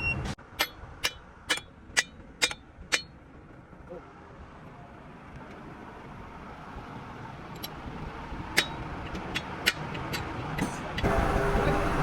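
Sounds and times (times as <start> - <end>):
sharp metallic knocks: 0.5 - 3.2
motor vehicle running: 5.1 - 12.0.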